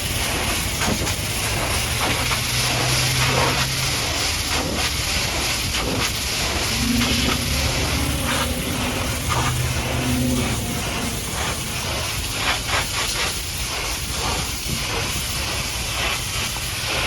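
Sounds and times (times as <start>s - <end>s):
pressure washer water jet hissing: 0.0s - 17.0s
low machine hum: 1.6s - 12.8s.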